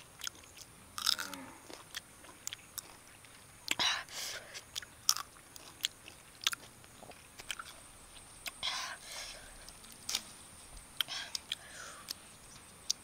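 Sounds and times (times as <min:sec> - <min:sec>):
crisp bites and chewing: 0:00.2 - 0:03.8, 0:04.6 - 0:07.8.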